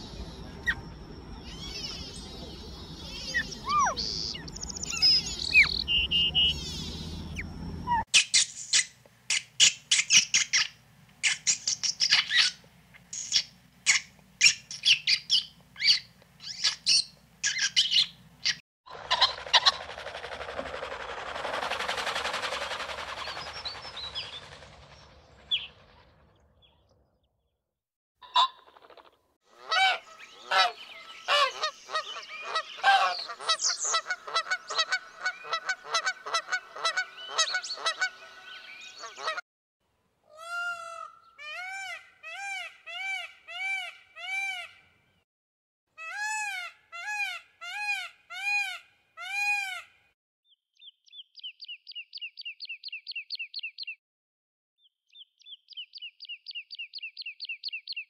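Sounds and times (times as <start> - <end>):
birds calling: 0.0 - 19.9, 28.2 - 39.4.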